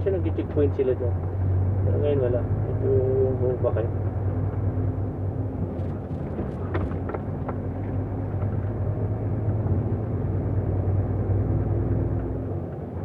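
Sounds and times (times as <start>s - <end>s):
truck engine and road noise: 0.0s - 13.0s.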